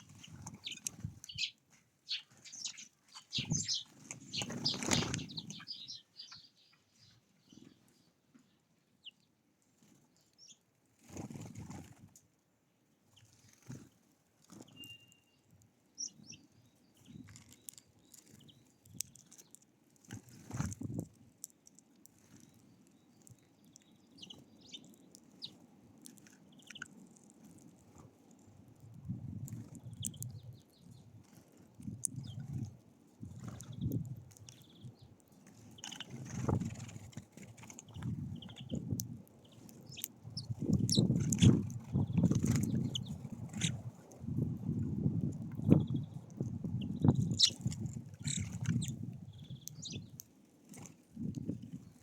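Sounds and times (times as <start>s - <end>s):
faint bird chirps: 0.0s - 9.2s, 14.6s - 19.5s, 37.9s - 43.8s, 45.6s - 47.6s, 48.2s - 50.2s
bird wingbeats: 2.2s - 5.9s.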